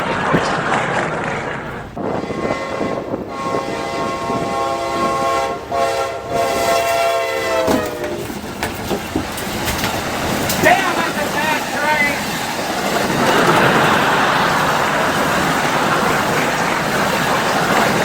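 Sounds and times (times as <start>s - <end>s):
passing train rumble: 0.0s - 18.0s
locomotive horn: 2.0s - 8.9s.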